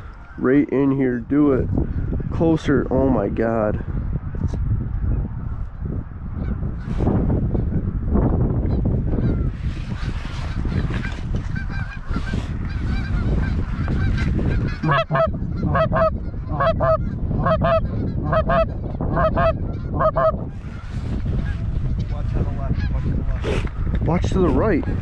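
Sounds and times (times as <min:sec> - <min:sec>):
geese honking: 0:09.1 - 0:20.8.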